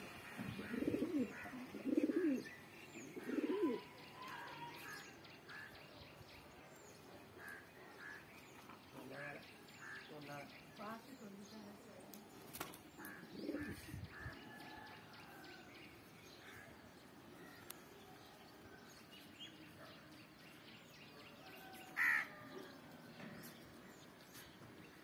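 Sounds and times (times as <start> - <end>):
birds calling and chirping: 0.0 - 25.0.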